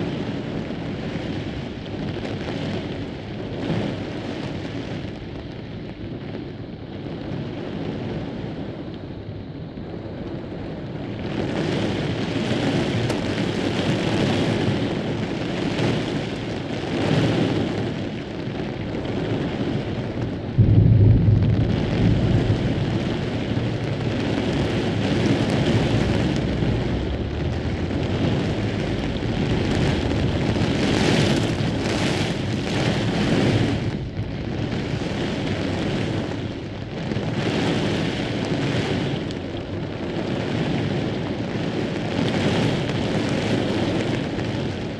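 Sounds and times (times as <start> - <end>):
heavy rain: 0.0 - 44.9
wind: 0.0 - 44.9
low thunder clap rumbling: 9.9 - 44.9.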